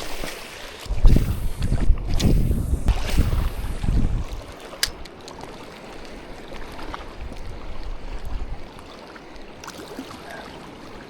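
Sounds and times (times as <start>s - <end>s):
wind rumbling on microphone: 0.0s - 5.1s, 6.2s - 8.8s
shallow water washing: 0.0s - 11.0s.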